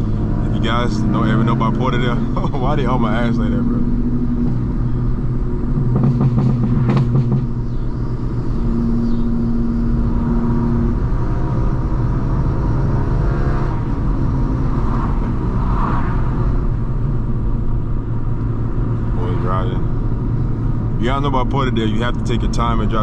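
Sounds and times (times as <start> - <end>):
car exhaust running at low cruise: 0.0 - 23.0
sharp exhaust pops: 5.7 - 7.7.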